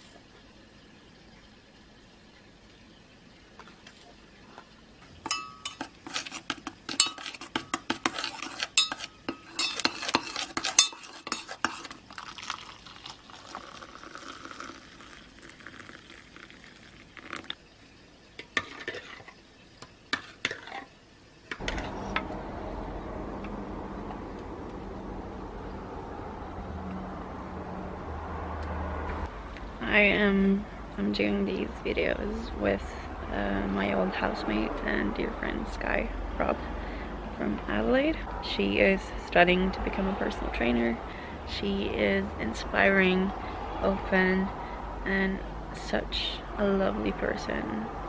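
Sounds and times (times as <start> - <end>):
spoon clinking in crockery: 5.3 - 5.9, 8.8 - 11.5
low hum: 21.6 - 45.7.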